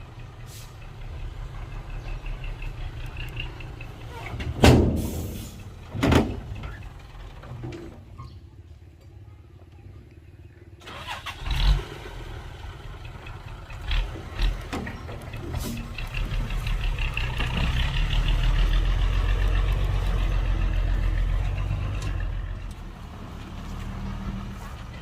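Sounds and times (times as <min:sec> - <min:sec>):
heavy diesel engine running: 0:10.2 - 0:25.0.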